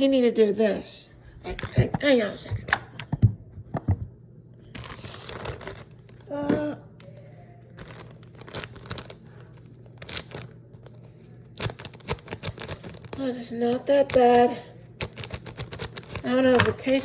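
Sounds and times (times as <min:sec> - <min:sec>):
plastic packaging crinkling and tearing: 0:04.6 - 0:06.3, 0:07.6 - 0:11.0, 0:11.6 - 0:14.2, 0:15.0 - 0:17.0.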